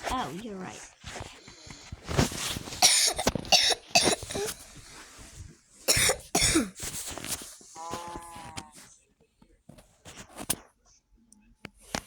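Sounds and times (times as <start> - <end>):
person coughing harshly: 2.8 - 4.6, 5.9 - 6.8.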